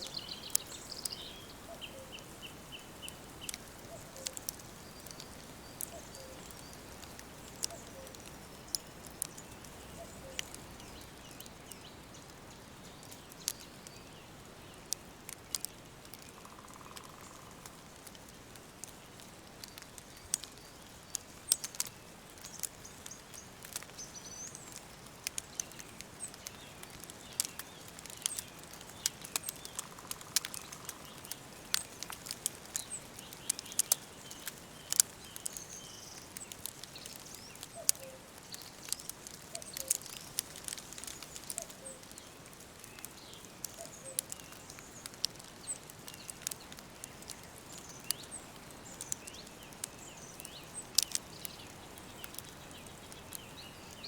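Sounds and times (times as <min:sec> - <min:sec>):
faint bird chirps: 0:00.0 - 0:14.9, 0:32.7 - 0:54.0
wood fire crackling: 0:00.0 - 0:54.0.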